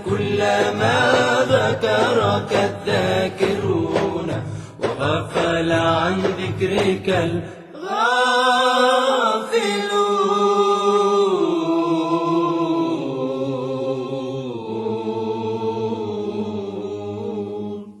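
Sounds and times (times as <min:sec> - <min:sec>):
person chanting: 0:05.0 - 0:18.0.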